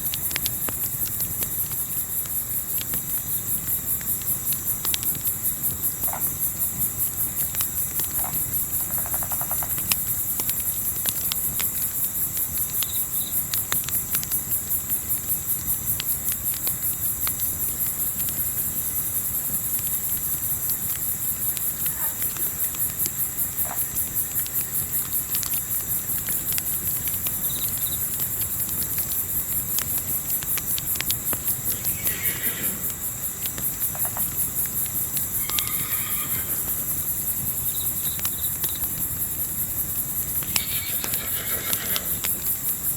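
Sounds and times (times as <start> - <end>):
campfire crackling: 0.0 - 42.9
crickets chirping: 0.0 - 42.9
short animal calls: 31.7 - 33.0.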